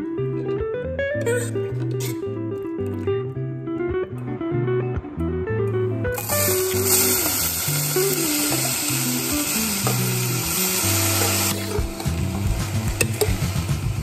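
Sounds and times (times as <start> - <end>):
spoon scraping a metal pot: 1.2 - 2.2
potato sizzling in hot oil: 6.2 - 14.0.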